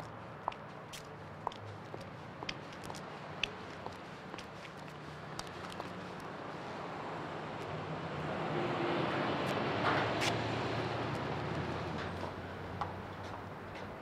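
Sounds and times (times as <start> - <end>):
vehicle passing by: 6.5 - 13.1.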